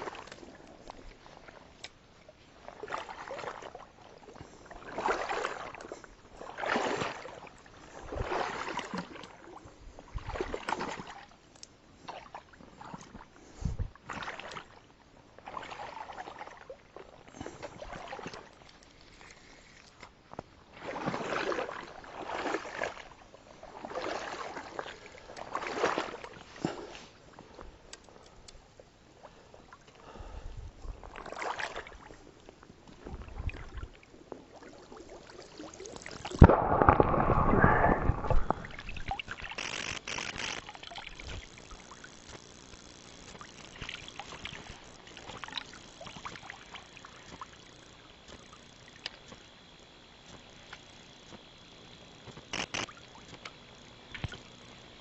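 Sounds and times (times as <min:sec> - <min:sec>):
paddle strokes swishing through water: 0:00.0 - 0:49.5.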